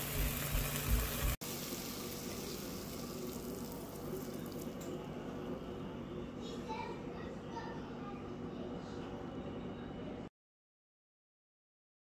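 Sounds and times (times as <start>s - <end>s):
okra sizzling in frying pan: 0.0s - 4.8s.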